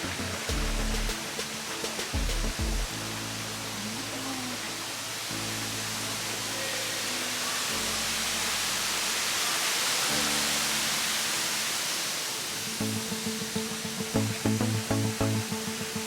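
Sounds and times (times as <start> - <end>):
regular beat: 0.0 - 2.9
background music with held chords: 0.0 - 9.4, 12.7 - 16.0
waterfall rushing: 0.0 - 16.0.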